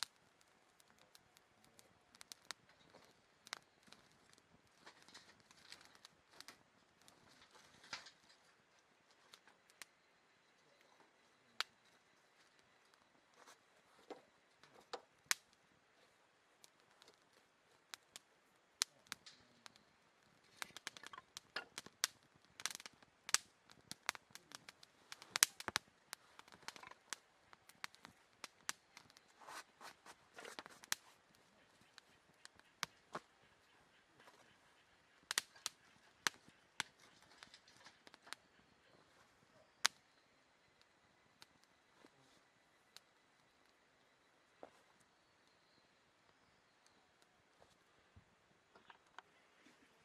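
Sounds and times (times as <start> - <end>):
wood fire crackling and popping: 0.0 - 49.4.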